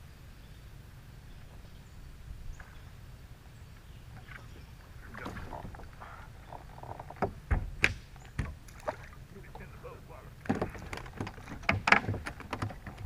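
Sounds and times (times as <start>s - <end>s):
low steady rumble: 0.0s - 13.0s
knocks and scrapes around kayak: 4.1s - 13.0s.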